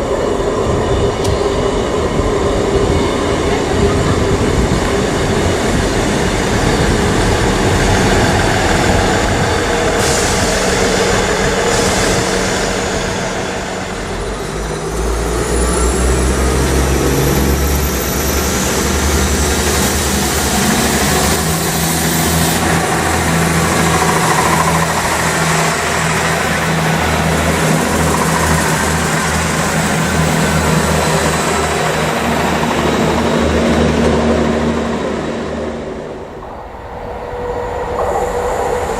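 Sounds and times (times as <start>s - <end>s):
train running by: 0.0s - 38.9s
diesel engine low steady note: 6.6s - 36.8s.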